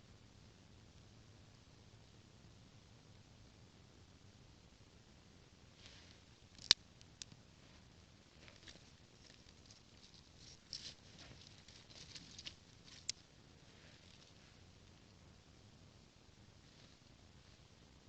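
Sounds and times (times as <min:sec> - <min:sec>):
dry twigs crackling and rustling: 0:05.8 - 0:15.0.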